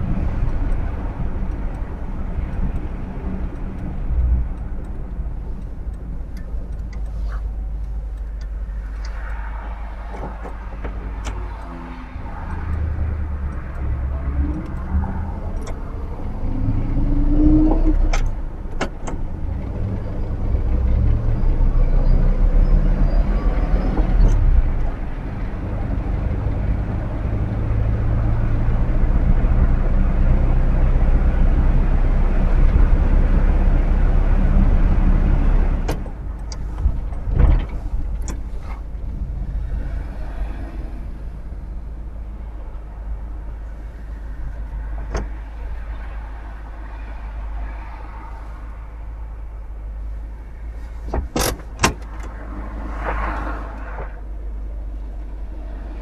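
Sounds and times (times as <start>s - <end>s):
sharp clicks: 0.0s - 19.8s
car engine and road rumble: 0.0s - 56.0s.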